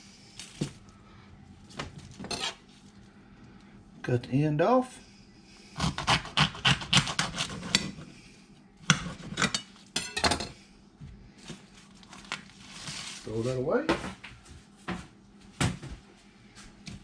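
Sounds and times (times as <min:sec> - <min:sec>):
knife sawing through corn stalk: 0:05.8 - 0:08.0.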